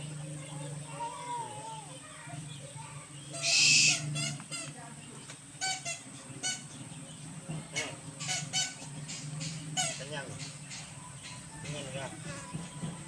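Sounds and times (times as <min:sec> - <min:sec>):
owl hissing screech: 0:03.4 - 0:04.1.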